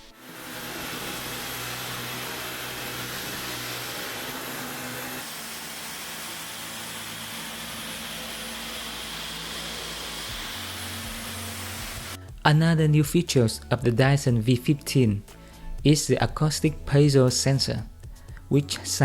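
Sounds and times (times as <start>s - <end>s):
stick vacuum whirring: 0.0s - 12.4s.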